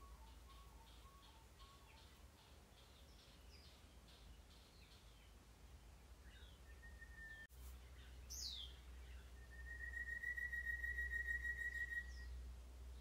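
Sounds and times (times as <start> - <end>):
faint bird whistles: 6.3 - 7.5, 9.4 - 12.3.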